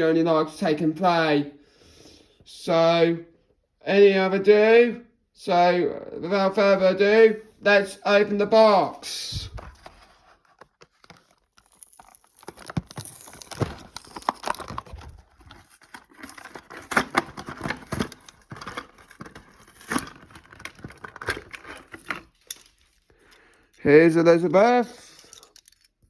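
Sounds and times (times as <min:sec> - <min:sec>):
cardboard packaging tearing: 0:09.5 - 0:23.1.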